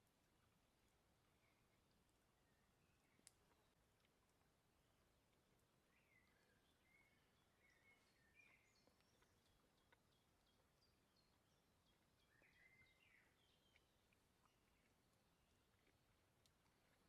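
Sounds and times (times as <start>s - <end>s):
faint outdoor hiss: 0.0s - 17.0s
birds chirping and whistling: 6.0s - 9.2s.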